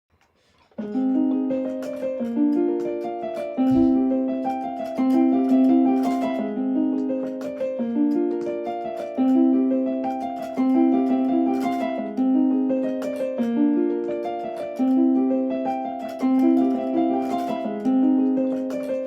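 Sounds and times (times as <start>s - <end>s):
electronic piano-like melody: 0.8s - 19.0s.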